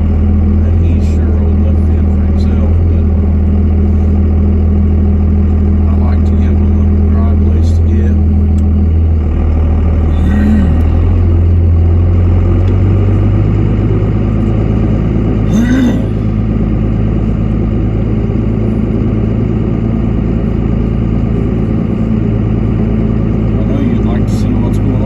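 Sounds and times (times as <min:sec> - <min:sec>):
truck engine humming: 0:00.0 - 0:25.0.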